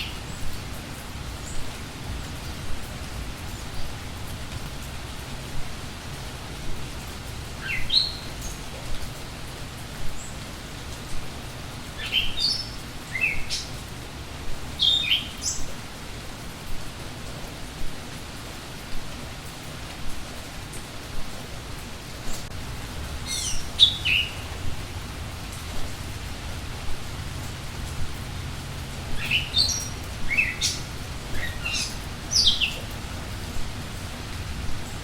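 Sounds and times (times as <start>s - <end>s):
songbird chirping: 0.0s - 4.3s, 7.6s - 8.7s, 12.0s - 13.9s, 14.7s - 15.8s, 23.2s - 33.8s
steady rain falling: 0.0s - 35.0s.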